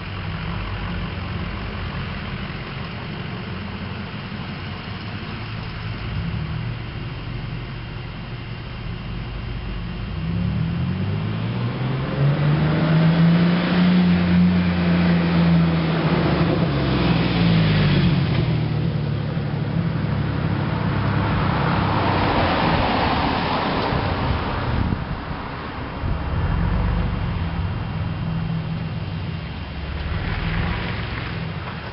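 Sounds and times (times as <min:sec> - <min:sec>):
truck engine exhaust drone: 0:00.0 - 0:31.9
rushing noise: 0:20.9 - 0:31.9.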